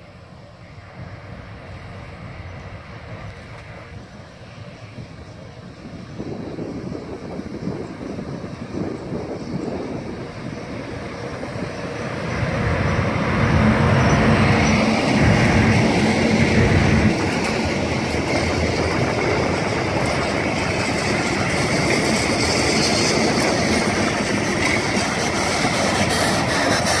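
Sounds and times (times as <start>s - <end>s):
locomotive running noise: 0.0s - 27.0s
wagons rolling on rails: 11.6s - 27.0s.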